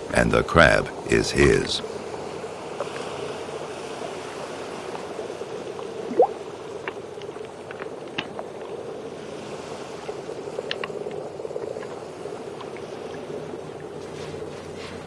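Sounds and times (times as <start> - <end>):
faint clicks: 10.6 - 12.0.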